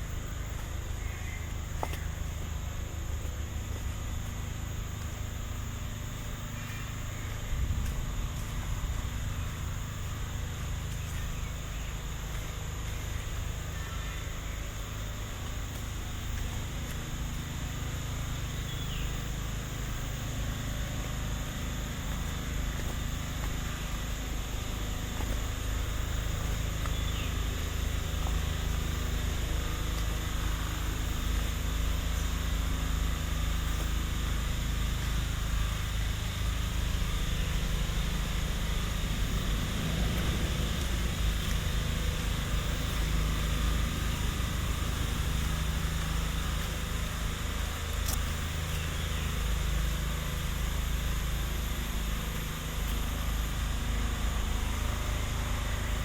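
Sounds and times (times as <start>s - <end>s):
insects droning: 0.0s - 56.0s
faint bird chirp: 0.8s - 2.2s, 6.2s - 7.7s, 10.8s - 15.2s, 18.3s - 19.5s, 26.1s - 28.6s
low rumble: 7.0s - 13.7s.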